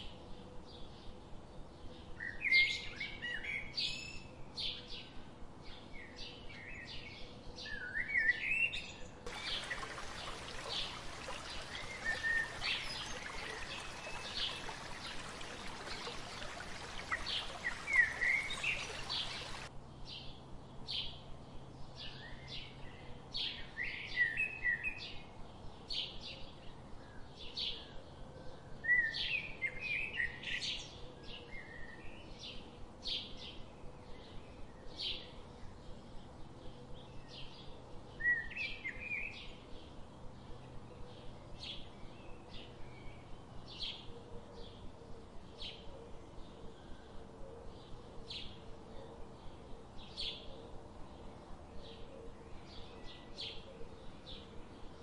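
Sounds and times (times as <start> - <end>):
small birds chirping: 9.3 - 19.7.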